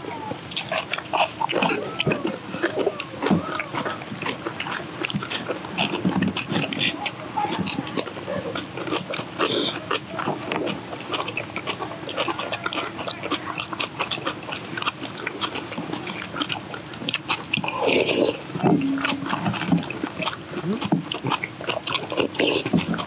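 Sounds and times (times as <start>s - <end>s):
people crunching and chewing: 0.0s - 23.0s
chopsticks tapping metal bowls: 18.6s - 20.0s.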